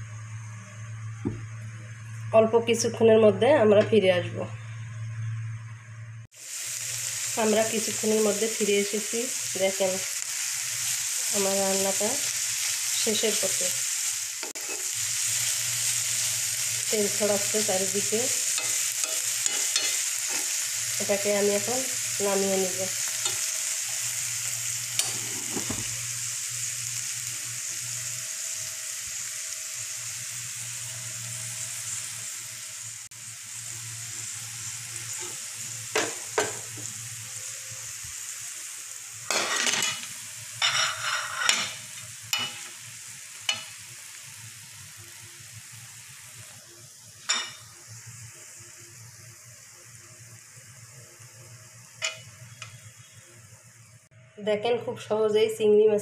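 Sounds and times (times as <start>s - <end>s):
food sizzling in oil: 6.2s - 54.1s
metal spoon scraping a pan: 14.5s - 15.0s, 18.5s - 20.6s, 24.9s - 26.0s, 39.3s - 42.7s.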